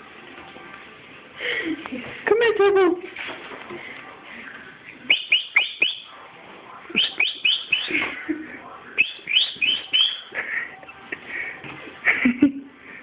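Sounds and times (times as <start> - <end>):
bird chirping: 5.0 - 6.1, 6.9 - 8.1, 9.0 - 10.3.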